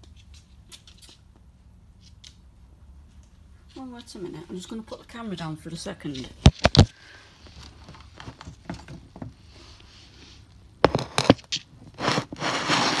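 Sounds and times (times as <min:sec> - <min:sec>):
rustling: 0:05.8 - 0:13.0.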